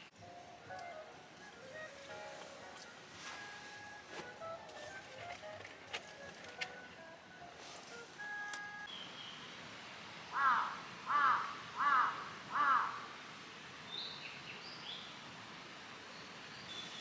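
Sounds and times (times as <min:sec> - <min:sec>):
low outdoor hiss: 0:00.0 - 0:17.0
bird calling: 0:10.3 - 0:13.2
faint high bird chirps: 0:16.5 - 0:17.0.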